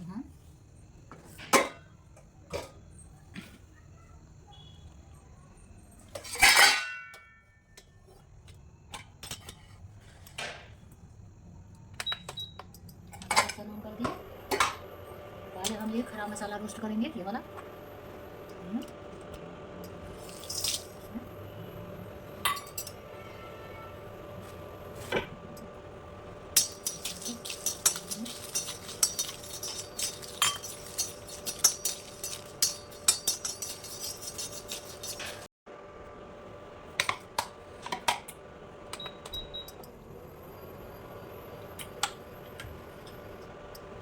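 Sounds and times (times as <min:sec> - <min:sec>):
spices clinking against metal: 0:19.8 - 0:21.4, 0:22.3 - 0:23.1, 0:26.5 - 0:35.5.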